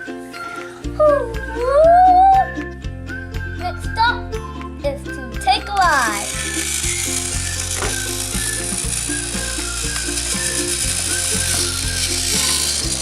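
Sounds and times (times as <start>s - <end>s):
simple tune playing: 0.0s - 13.0s
toy train motor whirring: 5.4s - 13.0s.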